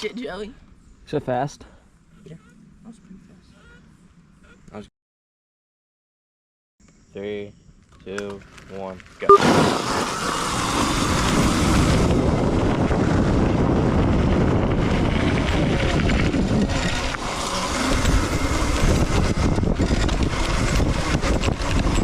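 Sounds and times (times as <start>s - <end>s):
rough jolting ride noise: 9.3s - 22.0s
wind rushing: 9.4s - 17.0s.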